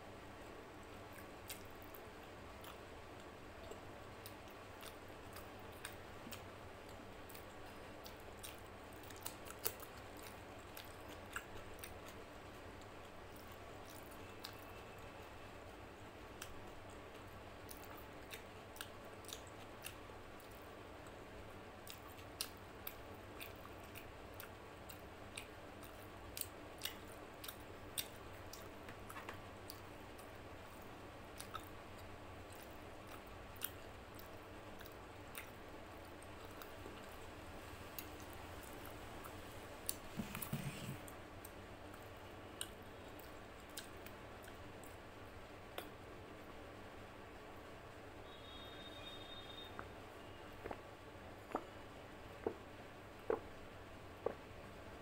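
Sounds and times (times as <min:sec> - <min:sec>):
faint background hum: 0:00.0 - 0:55.0
person chewing: 0:01.1 - 0:12.2, 0:16.4 - 0:21.2, 0:21.8 - 0:30.3, 0:31.4 - 0:37.3, 0:50.6 - 0:50.8, 0:51.4 - 0:51.8, 0:52.4 - 0:52.6, 0:53.2 - 0:53.4, 0:54.2 - 0:54.5.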